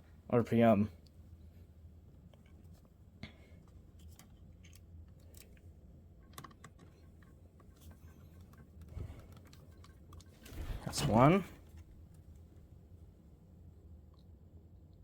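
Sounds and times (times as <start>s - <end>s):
low steady hum: 0.0s - 15.0s
small parts clicking and tapping: 3.6s - 10.6s.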